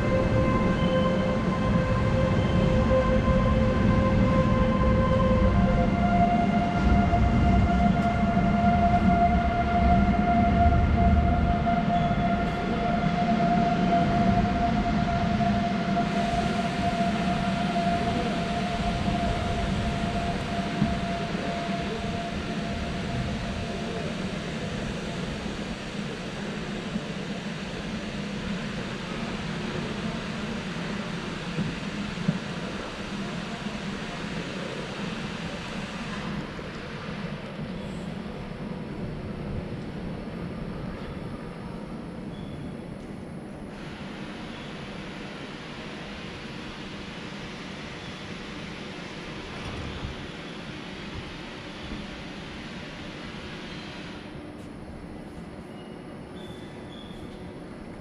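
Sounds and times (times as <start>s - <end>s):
train coaches rumbling: 0.0s - 42.3s
train whine: 0.0s - 58.0s.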